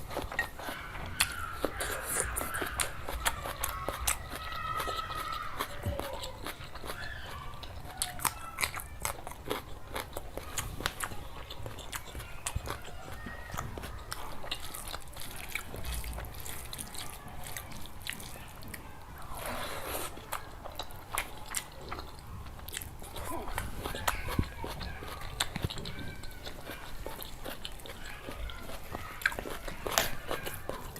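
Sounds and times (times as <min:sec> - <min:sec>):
person chewing food: 0:00.0 - 0:30.9.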